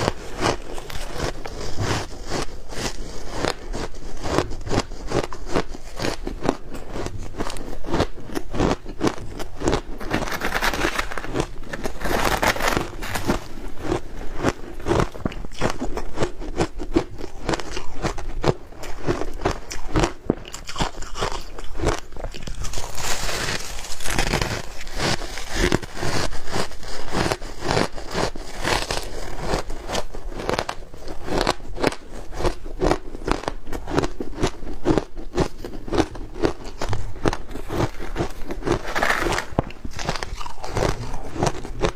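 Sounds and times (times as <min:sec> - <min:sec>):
ice being crunched: 0:00.0 - 0:04.4, 0:08.6 - 0:16.0, 0:17.2 - 0:31.6, 0:34.0 - 0:41.9.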